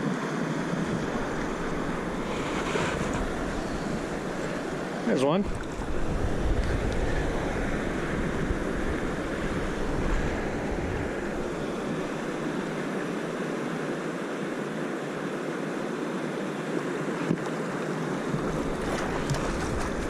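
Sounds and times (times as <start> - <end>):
wind rumbling on microphone: 0.0 - 13.6, 18.2 - 20.0
river water rushing over rocks: 0.0 - 20.0.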